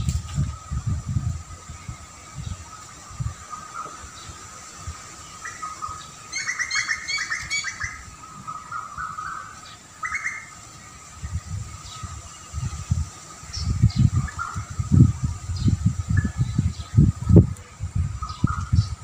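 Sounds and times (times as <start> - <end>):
low rumbles: 0.0 - 4.4
birds chirping: 0.0 - 19.0.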